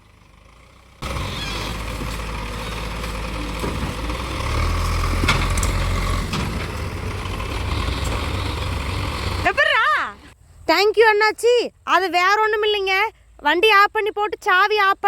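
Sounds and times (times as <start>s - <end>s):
diesel engines rumbling: 0.0s - 10.4s.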